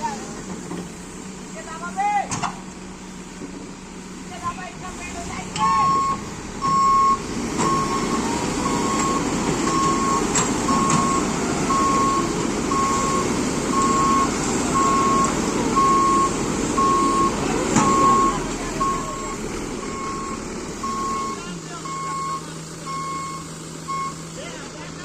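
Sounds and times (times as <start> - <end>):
diesel engine running: 0.0 - 25.0
excavator travel alarm beeping: 5.4 - 24.4.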